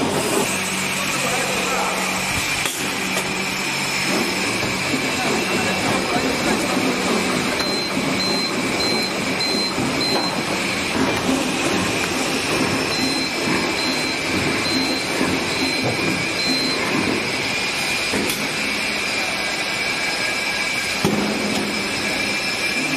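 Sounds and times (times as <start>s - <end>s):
machine with conveyor clattering: 0.0s - 22.9s.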